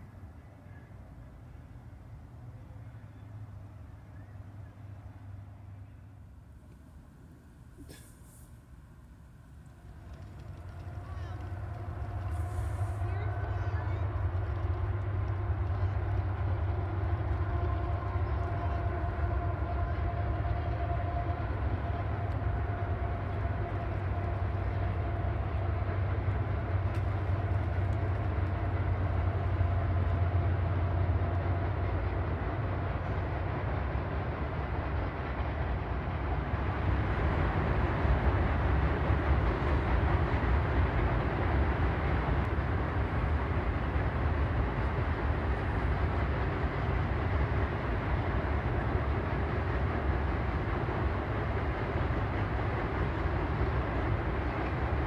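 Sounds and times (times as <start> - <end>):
faint whining tones: 0.0 - 33.5
train rumbling past: 0.0 - 55.0.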